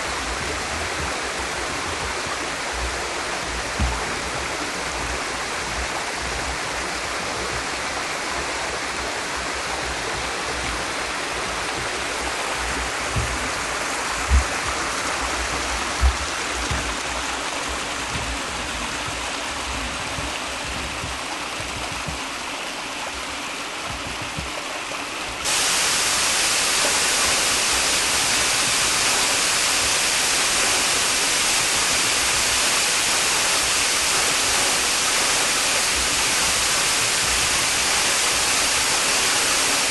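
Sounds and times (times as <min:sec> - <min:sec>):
waterfall rushing: 0:00.0 - 0:39.9
low thumps: 0:08.9 - 0:22.3.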